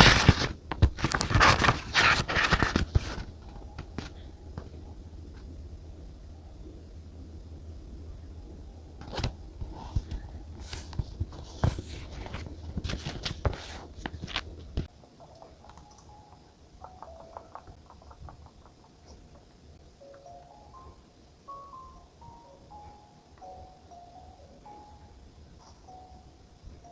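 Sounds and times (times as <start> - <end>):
paper clicks and crackles: 0.0 - 5.4, 9.0 - 19.6
plinking mallet background music: 15.6 - 17.8, 20.0 - 26.9.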